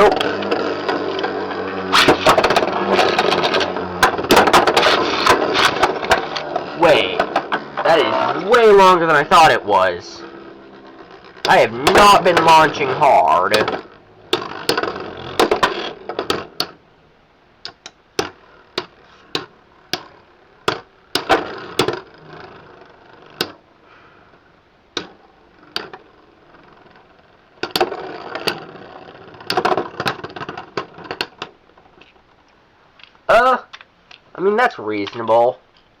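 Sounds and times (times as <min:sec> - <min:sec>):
spinning tops clashing: 0:00.0 - 0:08.4
whirring scrape of spinning tops: 0:00.0 - 0:16.8, 0:18.2 - 0:32.2.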